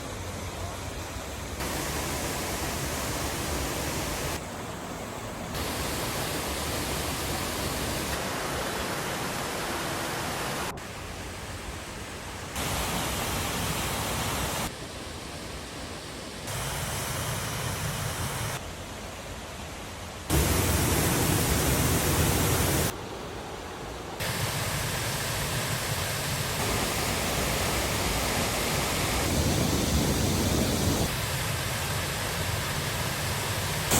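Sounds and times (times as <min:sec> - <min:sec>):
waterfall rushing: 0:01.6 - 0:11.5, 0:20.3 - 0:23.0.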